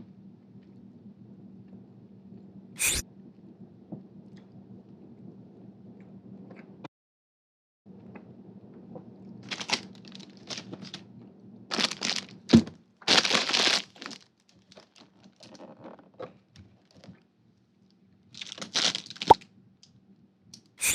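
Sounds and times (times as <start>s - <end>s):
snack packaging crinkling: 9.4s - 11.1s, 11.7s - 16.1s, 18.4s - 19.4s.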